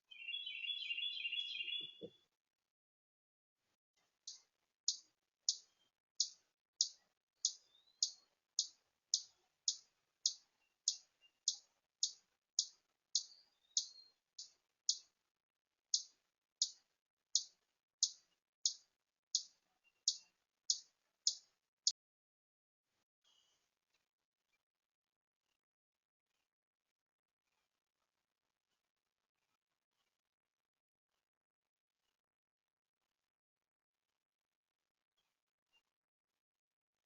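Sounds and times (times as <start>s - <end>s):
faint higher bird calls: 0.0s - 2.2s, 4.3s - 15.1s
songbird chip call: 0.1s - 2.1s, 6.2s - 14.0s.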